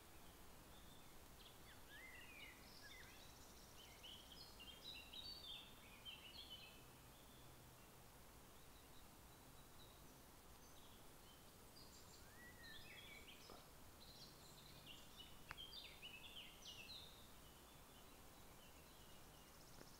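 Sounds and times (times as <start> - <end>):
birdsong chirps and trills: 0.0 - 19.9
outdoor hiss: 0.0 - 19.9
soft click: 15.4 - 15.7.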